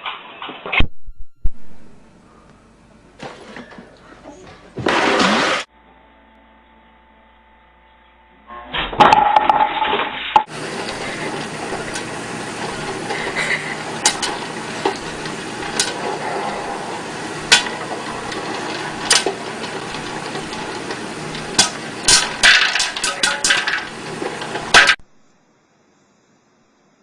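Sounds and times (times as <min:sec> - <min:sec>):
sharp knocks and clatters: 0:09.0 - 0:25.0.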